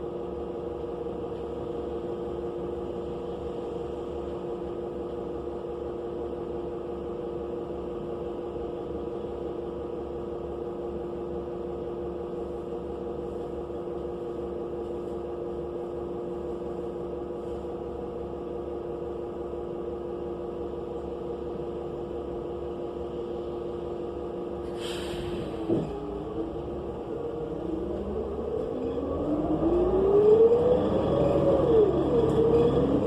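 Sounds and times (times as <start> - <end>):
bus engine idling: 0.0 - 33.0
burst of hiss: 24.7 - 25.6.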